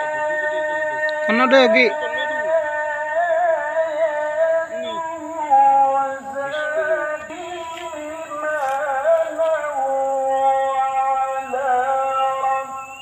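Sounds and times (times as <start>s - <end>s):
song with singing voice: 0.0s - 13.0s.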